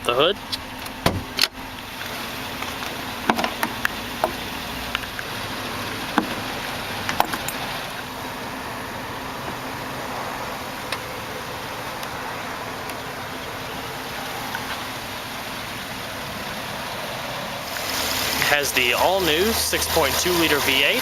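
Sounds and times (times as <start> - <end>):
car hood latch clicks and knocks: 0.5 - 1.6, 3.2 - 4.4, 7.1 - 7.6.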